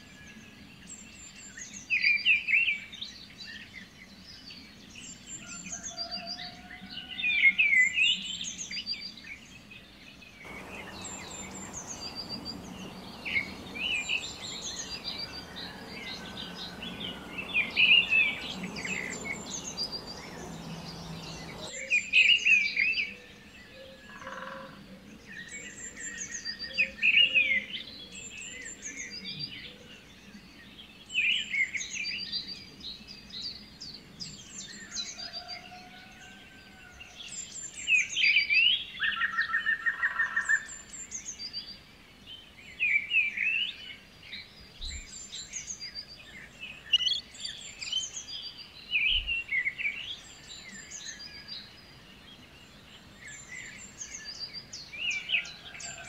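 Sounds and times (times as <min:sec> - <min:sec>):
low pulsed bird trills: 0:10.5 - 0:21.7
songbirds chirping and singing: 0:10.5 - 0:22.0.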